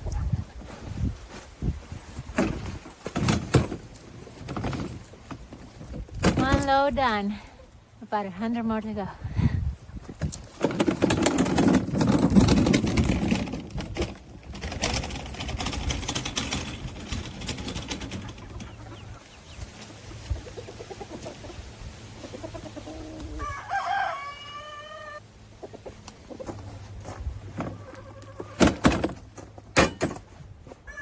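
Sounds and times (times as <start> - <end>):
rustling and scraping: 0.0 - 7.0, 9.9 - 22.2, 25.8 - 30.9
rooster crowing: 23.0 - 25.2.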